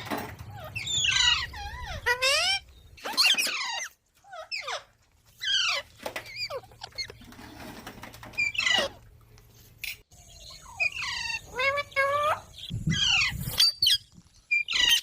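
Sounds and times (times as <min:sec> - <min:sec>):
parrot squeaky calls: 0:00.5 - 0:07.1, 0:10.4 - 0:15.0.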